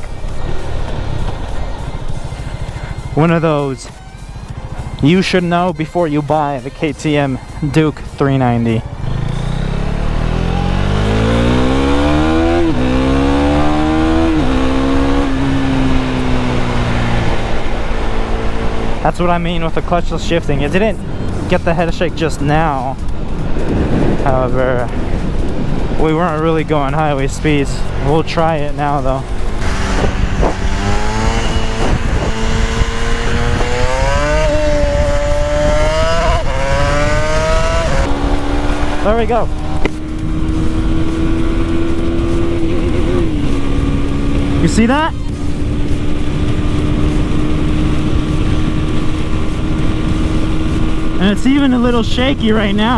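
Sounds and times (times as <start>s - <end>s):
motorcycle engine accelerating: 0.0s - 52.9s
wind noise on microphone: 22.5s - 27.1s, 28.6s - 52.9s.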